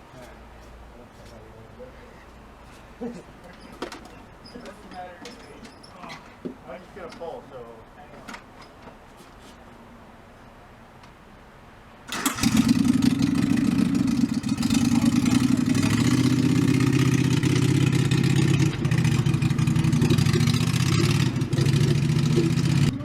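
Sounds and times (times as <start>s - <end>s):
vehicle engine running loudly: 12.1s - 23.0s.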